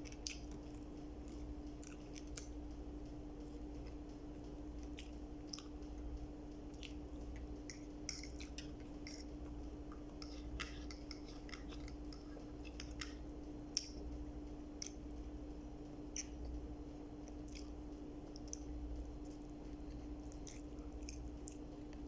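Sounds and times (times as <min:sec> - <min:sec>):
person chewing food: 0:00.0 - 0:22.0
steady low hum: 0:00.0 - 0:22.0
wet mouth clicks: 0:06.7 - 0:14.0, 0:16.1 - 0:16.6.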